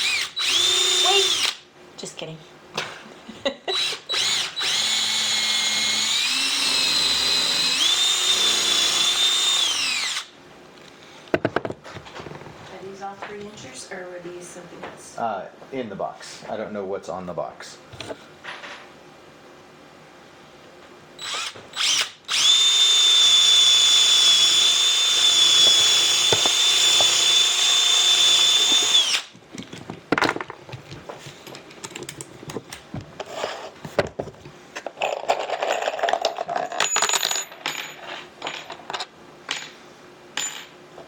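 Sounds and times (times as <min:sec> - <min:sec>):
power drill whining: 0:00.0 - 0:01.6, 0:03.7 - 0:10.3, 0:21.2 - 0:29.3
knocks and clatter of wood and tools: 0:11.3 - 0:12.6, 0:29.4 - 0:33.2.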